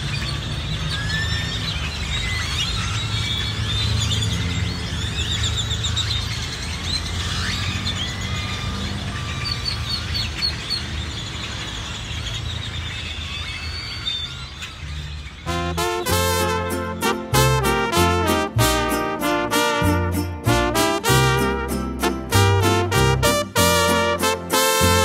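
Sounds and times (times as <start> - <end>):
songbirds chirping and trilling: 0.0 - 15.9.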